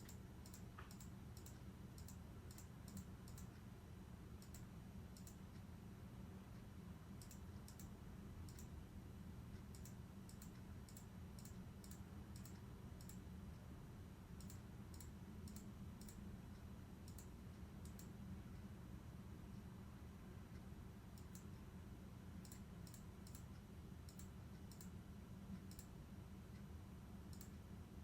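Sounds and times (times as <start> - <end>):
faint small clicks: 0.0 - 3.7, 4.4 - 5.7, 6.6 - 7.9, 8.5 - 8.7, 9.5 - 13.7, 14.4 - 18.1, 21.2 - 21.6, 22.4 - 25.0, 25.6 - 25.9, 27.3 - 27.6
low steady hum: 0.0 - 28.0.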